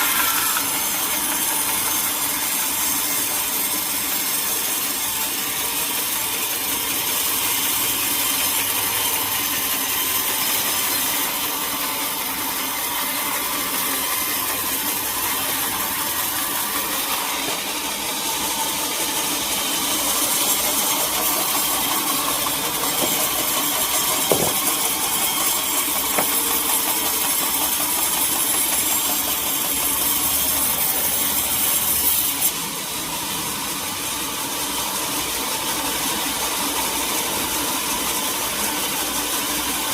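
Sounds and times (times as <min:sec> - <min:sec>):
saw cutting through log: 0:00.0 - 0:39.9
sharp knock: 0:24.2 - 0:24.9.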